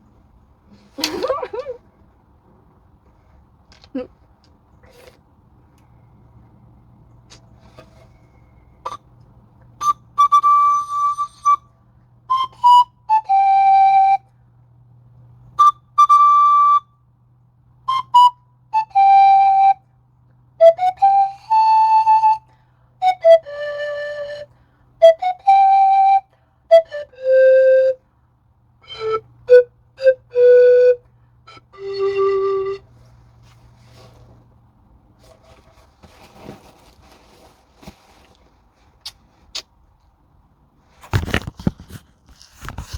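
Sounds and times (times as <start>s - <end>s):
pan flute notes: 8.0s - 14.4s, 15.6s - 17.0s, 17.8s - 20.0s, 20.6s - 28.1s, 28.8s - 33.2s.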